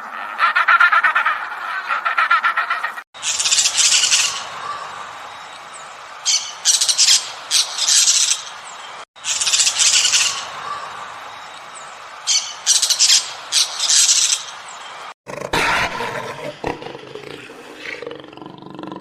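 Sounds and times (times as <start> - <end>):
bird squawking: 0.0 - 4.9
steady background hiss: 3.2 - 15.1.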